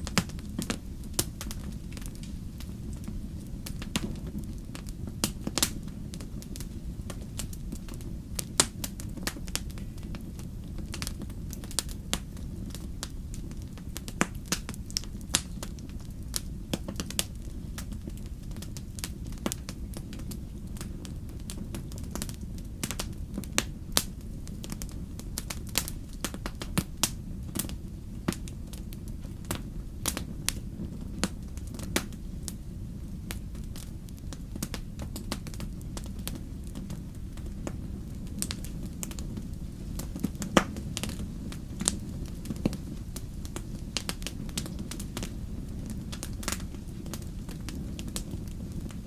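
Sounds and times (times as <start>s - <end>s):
campfire crackling and popping: 0.0s - 49.0s
low rumble of burning fire: 0.0s - 49.0s.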